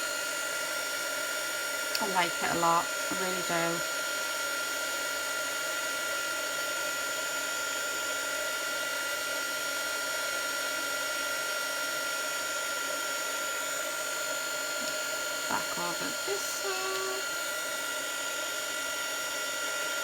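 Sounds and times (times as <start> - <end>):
heat gun blowing: 12.8 - 20.0.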